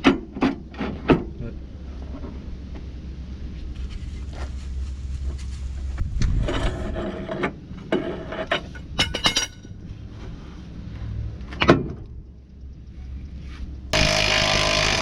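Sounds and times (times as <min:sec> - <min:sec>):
metal tools scraping and clattering: 0:06.4 - 0:09.8.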